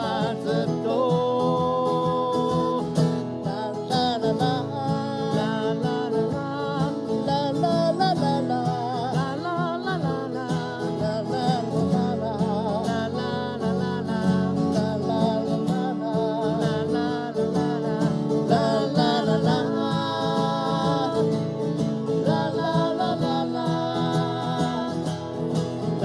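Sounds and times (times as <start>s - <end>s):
acoustic guitar strumming: 0.0s - 26.0s
person singing wordless notes: 15.4s - 25.4s.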